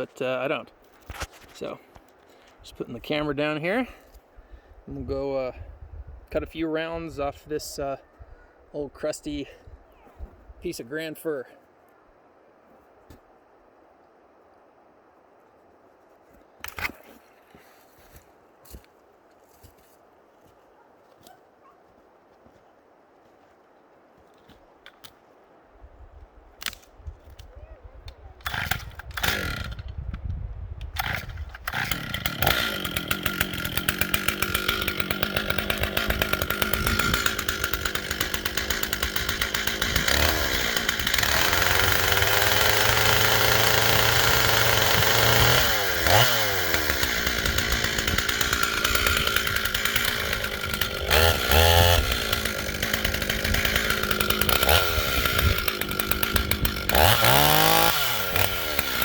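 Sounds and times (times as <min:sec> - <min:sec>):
chainsaw cutting log: 0:28.4 - 0:30.0, 0:30.9 - 0:59.0
chainsaw pull-starting: 0:28.4 - 0:30.0, 0:30.9 - 0:59.0.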